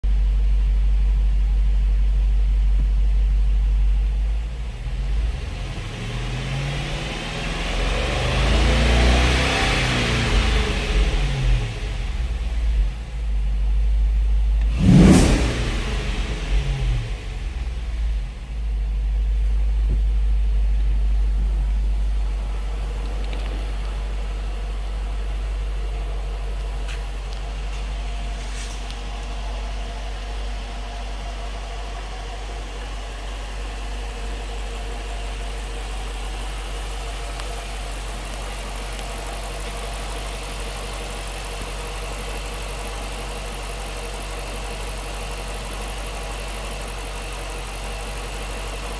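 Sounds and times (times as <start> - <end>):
car engine rumbling: 0.0 - 48.9.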